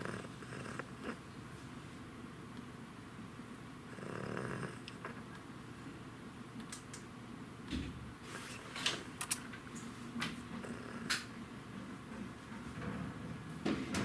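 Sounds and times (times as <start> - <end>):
dog snoring softly: 0.0 - 1.2, 3.9 - 5.2, 10.6 - 11.3.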